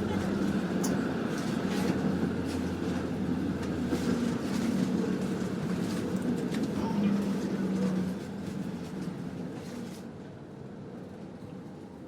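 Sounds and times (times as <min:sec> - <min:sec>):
streetcar rumble and hum: 0:00.0 - 0:12.0.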